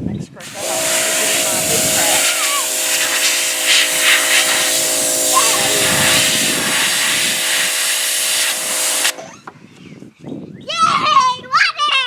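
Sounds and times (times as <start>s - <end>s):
water spray hissing: 0.4s - 9.3s
pressure washer motor whine: 0.4s - 9.4s.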